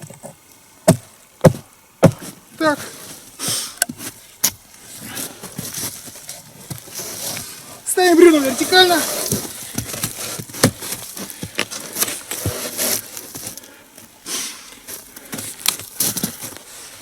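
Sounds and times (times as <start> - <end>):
crunching rustling handling noise: 4.0 - 17.0.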